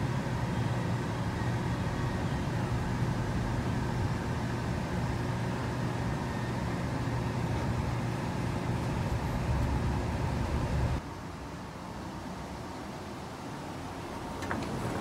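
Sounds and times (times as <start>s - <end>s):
train interior rumble and hum: 0.0s - 11.2s.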